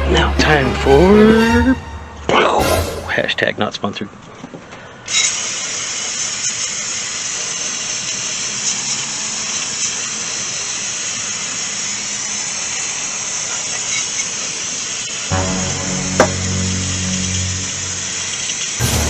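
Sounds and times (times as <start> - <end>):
spray hissing: 5.2 - 19.0.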